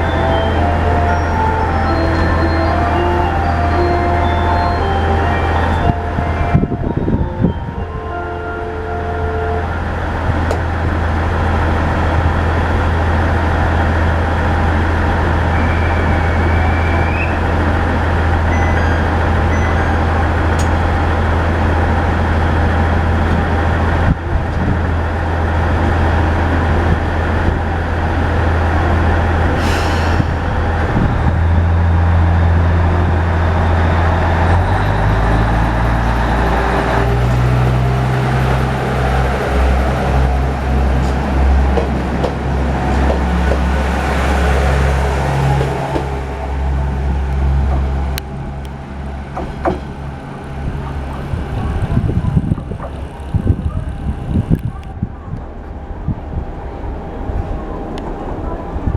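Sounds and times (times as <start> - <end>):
diesel railcar engine droning: 0.0 - 58.9.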